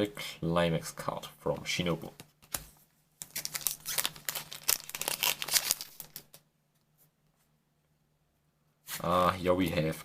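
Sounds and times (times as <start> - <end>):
foil wrapper crinkling and tearing: 3.2 - 6.4.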